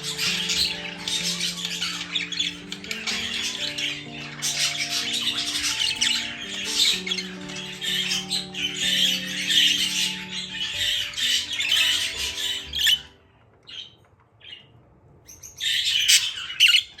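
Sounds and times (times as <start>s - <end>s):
soft music with held notes: 0.0s - 14.2s
budgerigars chattering and squawking: 0.0s - 14.6s, 15.3s - 17.0s.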